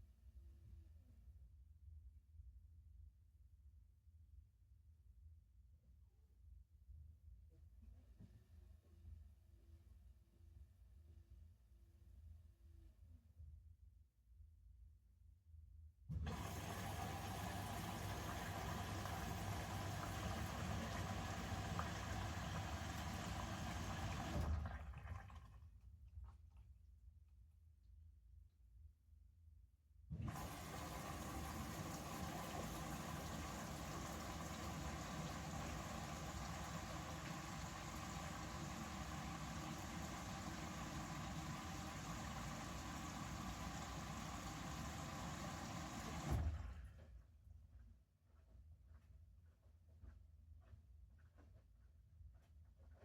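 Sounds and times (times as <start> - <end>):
washing machine hum: 16.1 - 25.8, 30.1 - 47.4
water filling washing machine: 16.1 - 25.8, 30.1 - 47.1.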